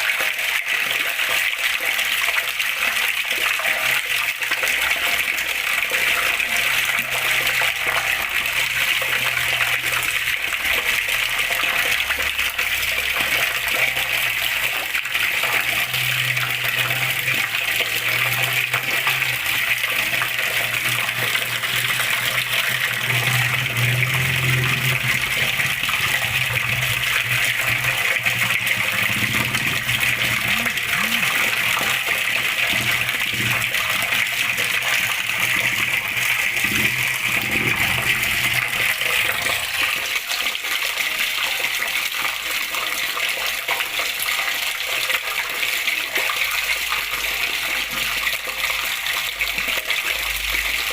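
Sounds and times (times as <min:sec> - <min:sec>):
water rushing: 0:00.0 - 0:50.9.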